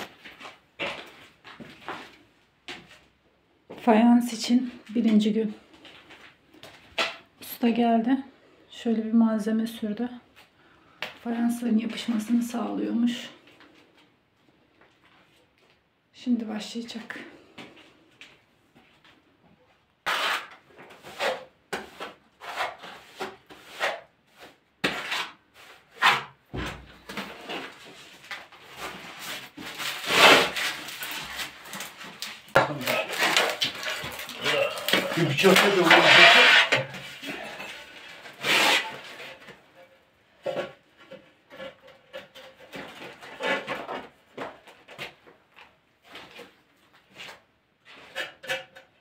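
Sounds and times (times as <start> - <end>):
trowel scraping tile adhesive: 20.0 - 26.4, 32.8 - 39.5.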